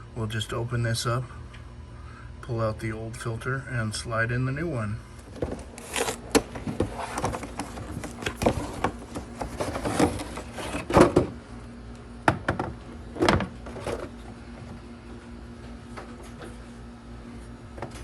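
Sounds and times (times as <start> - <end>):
faint hum: 0.0 - 18.0
plastic clicks and scraping: 5.2 - 11.1.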